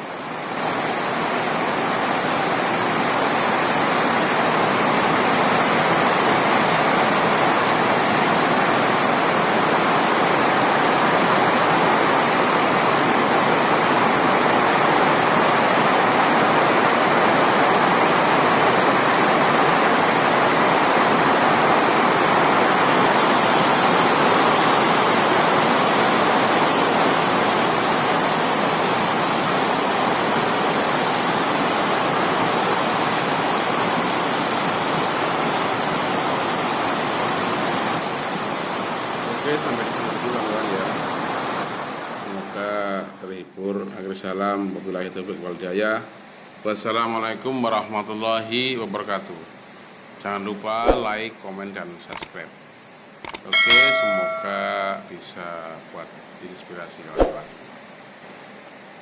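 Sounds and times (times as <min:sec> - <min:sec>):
heavy rain pouring: 0:00.0 - 0:42.6.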